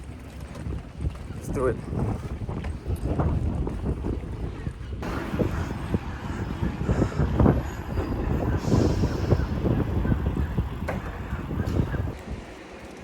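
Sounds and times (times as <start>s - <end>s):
wind rumble on microphone: 0.0s - 12.6s.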